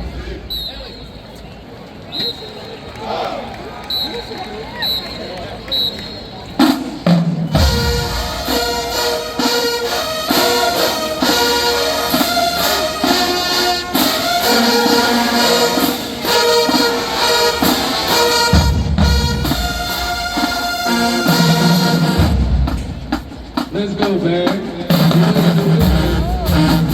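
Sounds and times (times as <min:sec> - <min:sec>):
brass section playing: 0:07.5 - 0:26.9
drum hits: 0:18.4 - 0:26.9.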